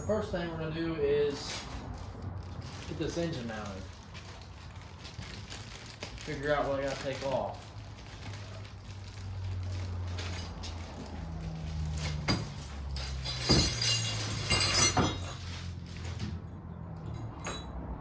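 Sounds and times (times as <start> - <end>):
metal tools clinking and knocking: 0.0 - 0.4, 12.0 - 15.8, 17.0 - 17.8
rustling clatter: 1.3 - 16.4
highway traffic drone: 8.8 - 18.0.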